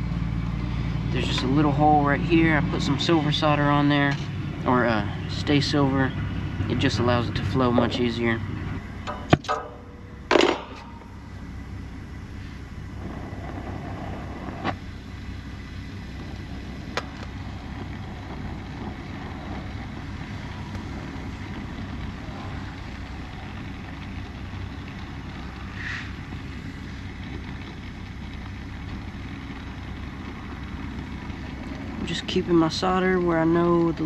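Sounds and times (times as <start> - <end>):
torch flame burning: 0.0 - 34.0.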